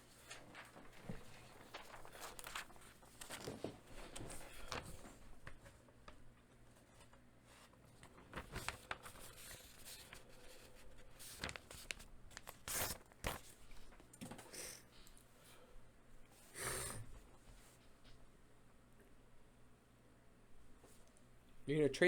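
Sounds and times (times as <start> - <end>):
clicks and rustles on a desk: 0.3 - 6.2.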